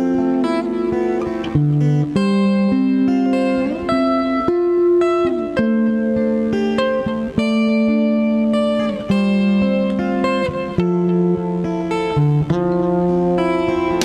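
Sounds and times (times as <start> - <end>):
plucked guitar music: 0.0 - 14.0.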